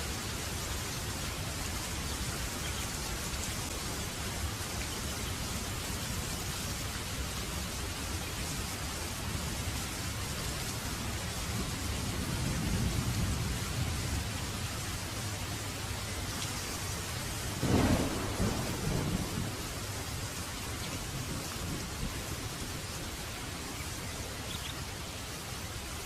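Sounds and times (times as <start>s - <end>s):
heavy rain falling: 0.0s - 26.0s
thunder rumbling: 11.0s - 15.6s, 16.9s - 23.0s
thunder clap: 17.6s - 20.0s.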